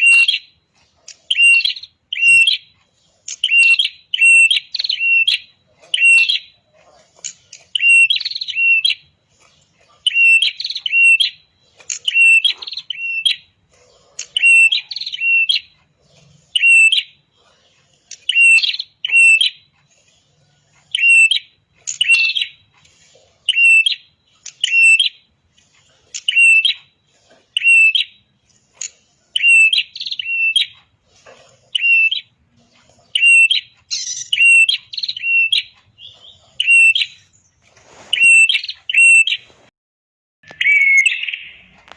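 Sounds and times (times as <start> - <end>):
songbird sharp high chirps: 0.0 - 0.6, 1.3 - 6.6, 7.8 - 9.1, 10.1 - 13.5, 14.2 - 15.8, 16.6 - 17.2, 18.2 - 19.6, 20.9 - 22.6, 23.5 - 25.3, 26.2 - 26.9, 27.6 - 28.3, 29.4 - 30.8, 31.8 - 32.4, 33.2 - 37.6, 38.2 - 39.5, 40.4 - 41.7.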